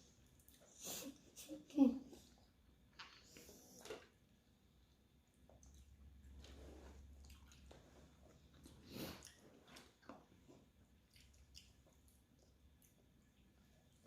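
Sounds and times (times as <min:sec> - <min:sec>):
person chewing food: 0:02.4 - 0:14.0.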